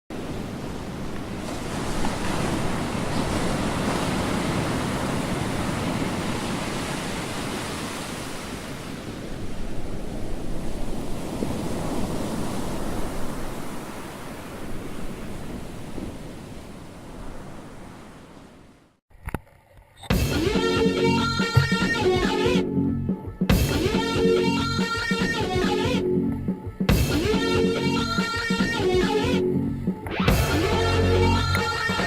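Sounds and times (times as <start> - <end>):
water rushing along a hull: 0.2 - 9.1.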